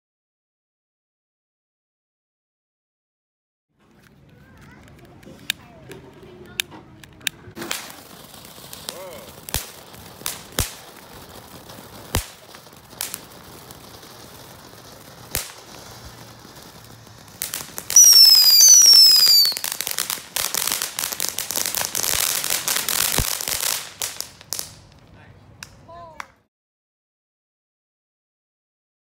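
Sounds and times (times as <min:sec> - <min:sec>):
firework crackling: 0:03.9 - 0:25.8
firework pops: 0:03.9 - 0:25.8
firework whistles falling in pitch: 0:17.9 - 0:19.8.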